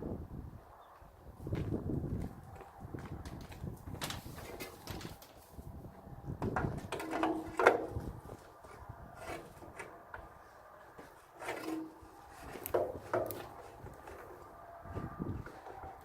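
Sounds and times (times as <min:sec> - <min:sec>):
wood knocking and scraping: 0:06.4 - 0:10.3, 0:10.9 - 0:14.5.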